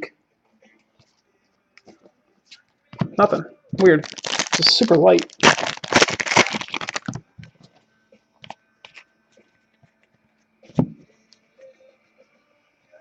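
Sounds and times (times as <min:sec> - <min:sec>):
foil wrapper crinkling and tearing: 0:03.8 - 0:07.2.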